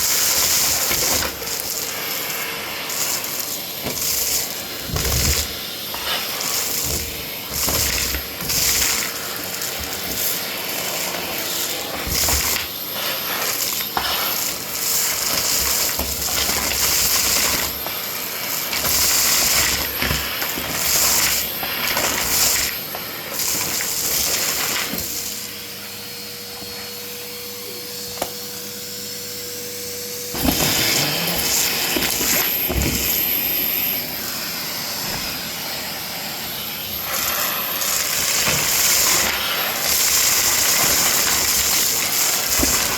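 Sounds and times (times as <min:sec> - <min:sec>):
vacuum cleaner airflow hissing: 0:00.0 - 0:42.9
vacuum motor hum: 0:00.0 - 0:42.9.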